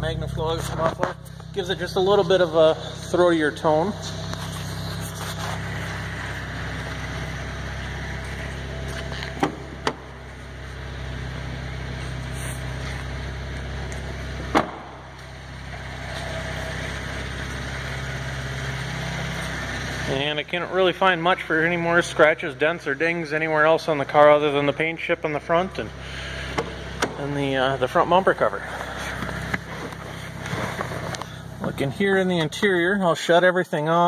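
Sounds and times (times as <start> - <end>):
car exhaust idling: 0.0 - 33.1.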